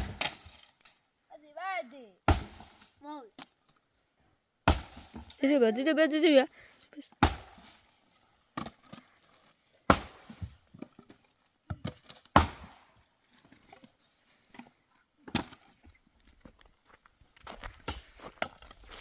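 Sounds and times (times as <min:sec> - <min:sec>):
axe chopping firewood: 0:00.0 - 0:00.8, 0:02.2 - 0:03.6, 0:04.6 - 0:05.4, 0:07.1 - 0:07.9, 0:08.5 - 0:09.1, 0:09.9 - 0:13.0, 0:14.5 - 0:15.7.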